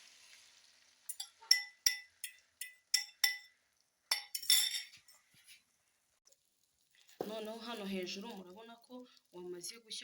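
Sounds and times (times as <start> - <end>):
metal utensil clinking on bowl rim: 1.1 - 5.2.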